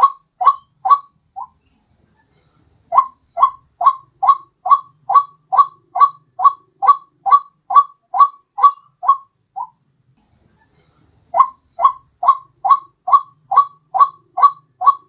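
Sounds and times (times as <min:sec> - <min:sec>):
waterhen calling: 0:00.0 - 0:01.6, 0:02.9 - 0:09.8, 0:11.4 - 0:15.0.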